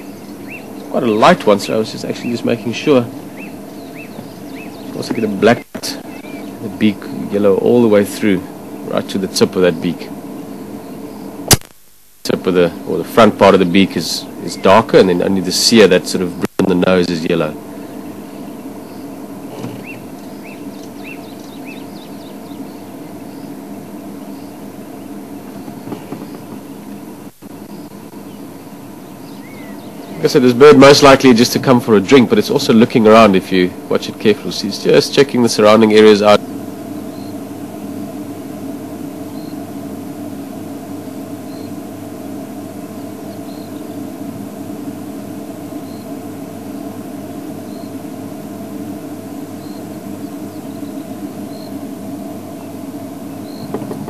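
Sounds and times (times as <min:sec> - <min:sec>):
bird chirping: 0:00.0 - 0:11.5, 0:12.8 - 0:15.5, 0:17.0 - 0:31.2, 0:37.0 - 0:38.0, 0:39.2 - 0:39.8, 0:41.3 - 0:41.9, 0:42.8 - 0:44.2, 0:45.7 - 0:48.4, 0:49.0 - 0:54.0
faint high bird calls: 0:00.0 - 0:11.5, 0:17.6 - 0:30.6, 0:36.9 - 0:38.2, 0:39.1 - 0:39.9, 0:41.0 - 0:42.0, 0:42.6 - 0:44.4, 0:45.6 - 0:54.0
steady low hum: 0:00.0 - 0:54.0.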